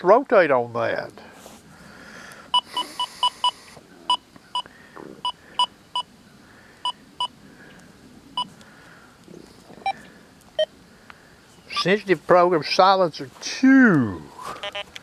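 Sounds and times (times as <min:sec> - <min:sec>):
metal detector beeps: 0:02.5 - 0:06.1, 0:11.7 - 0:11.9, 0:14.6 - 0:15.0.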